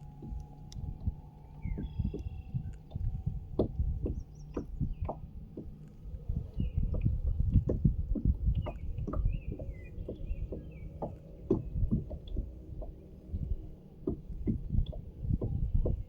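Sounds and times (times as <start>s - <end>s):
low rumble: 0.0s - 16.0s
thumps against a kayak hull: 0.0s - 16.0s
bird chirps: 1.4s - 3.1s, 8.5s - 12.4s.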